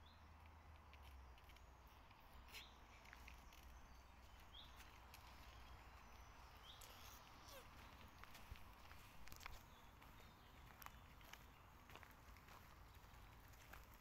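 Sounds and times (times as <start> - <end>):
faint bird calls: 4.4 - 11.7.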